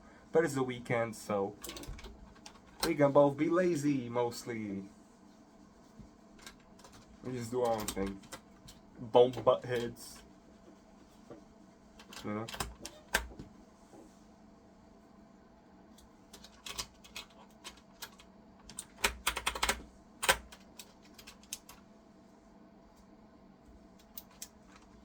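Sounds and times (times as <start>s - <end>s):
computer keyboard clicks: 16.3s - 21.8s, 24.0s - 24.9s.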